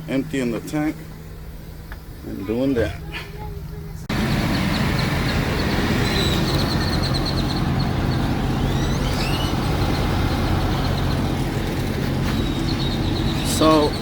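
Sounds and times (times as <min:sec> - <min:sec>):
diesel engine idling: 0:00.0 - 0:14.0
outdoor noise: 0:00.0 - 0:14.0
bird chirping: 0:04.1 - 0:14.0
bird whistling sliding notes: 0:04.3 - 0:14.0.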